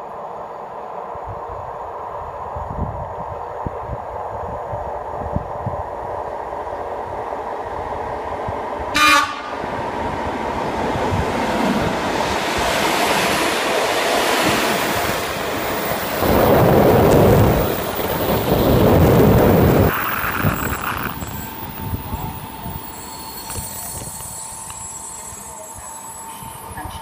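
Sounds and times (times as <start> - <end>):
train wheel-and-rail noise: 0.0 - 27.0
train horn blast: 8.9 - 9.6
train brake squeal: 19.8 - 27.0.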